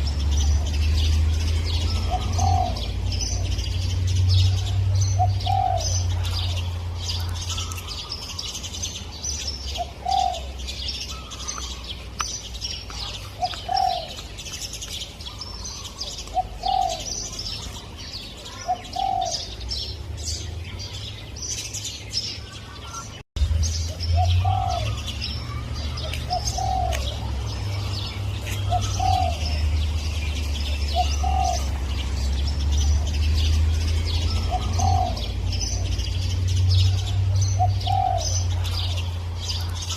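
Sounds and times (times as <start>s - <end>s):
small birds chirping: 0.0s - 39.9s
dove cooing: 1.7s - 3.8s, 4.4s - 8.6s, 9.6s - 11.9s, 12.9s - 14.3s, 15.2s - 17.8s, 18.4s - 19.6s, 24.1s - 32.2s, 34.2s - 36.2s, 36.8s - 39.9s.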